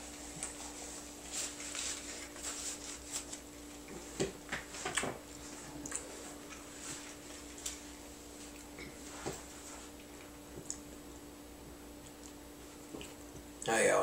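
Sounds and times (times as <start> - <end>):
steady low hum: 0.0 - 14.0
chewing and lip-smacking: 4.9 - 7.8, 9.8 - 11.0, 12.0 - 13.7.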